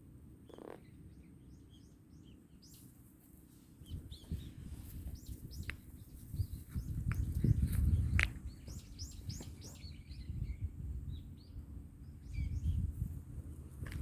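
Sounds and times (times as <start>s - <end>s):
songbirds chirping and twittering: 0.0s - 14.0s
wind buffeting microphone: 3.8s - 14.0s.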